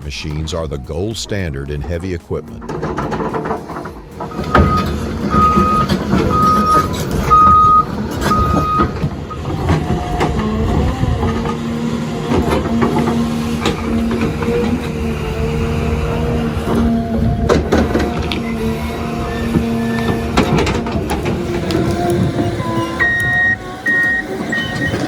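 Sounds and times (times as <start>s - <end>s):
engine running: 0.0s - 25.0s
clattering knocks: 2.5s - 15.0s, 19.5s - 25.0s
reversing alarm beeps: 4.3s - 9.5s, 22.5s - 25.0s.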